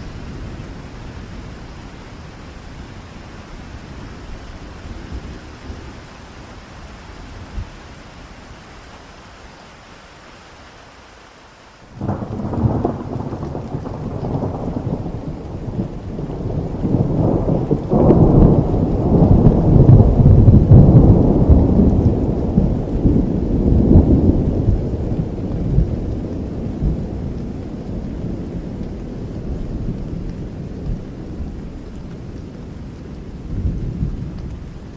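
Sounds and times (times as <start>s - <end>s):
steady rain: 0.0s - 34.9s
thunder rumbling: 12.0s - 34.9s.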